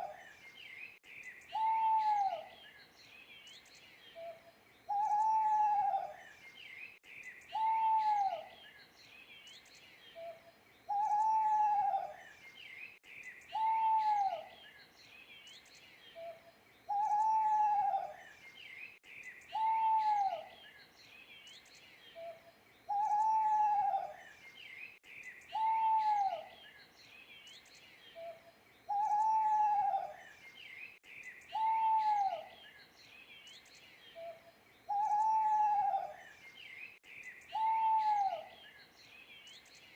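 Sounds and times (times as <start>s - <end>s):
faint birds chirping: 0.0s - 39.9s
owl hooting: 1.5s - 2.5s, 4.2s - 6.2s, 7.5s - 8.5s, 10.2s - 12.2s, 13.5s - 14.5s, 16.2s - 18.2s, 19.5s - 20.5s, 22.2s - 24.2s, 25.5s - 26.5s, 28.2s - 30.2s, 31.5s - 32.6s, 34.2s - 36.2s, 37.5s - 38.6s.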